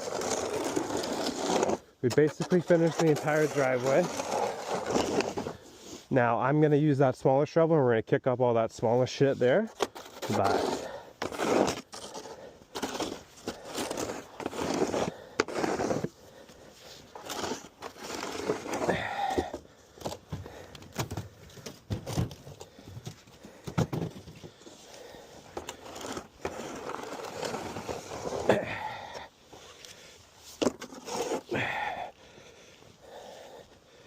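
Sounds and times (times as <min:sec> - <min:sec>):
snow shovel scraping: 0:00.0 - 0:06.1, 0:09.2 - 0:19.6, 0:24.6 - 0:32.0.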